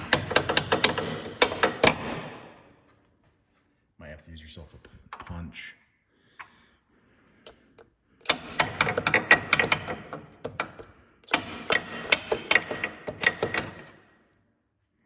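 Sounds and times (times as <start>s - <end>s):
hammer striking metal bolt: 0.0s - 2.5s, 8.2s - 14.0s.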